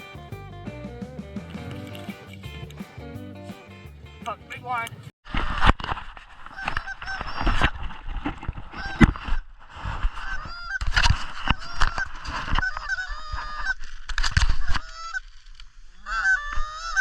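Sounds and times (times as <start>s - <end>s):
geese honking: 11.5s - 13.9s, 14.7s - 15.2s, 16.0s - 17.0s.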